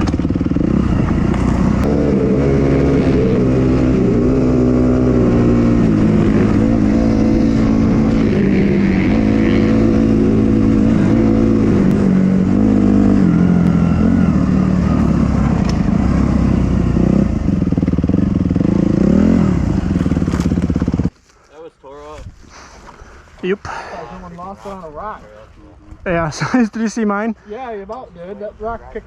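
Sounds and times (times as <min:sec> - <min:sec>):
dirt bike engine revving: 0:00.0 - 0:21.1.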